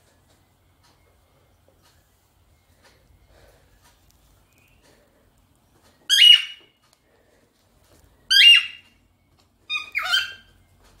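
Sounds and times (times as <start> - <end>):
bird whistled squawks: 6.1 - 6.6, 8.3 - 8.8, 9.7 - 10.5.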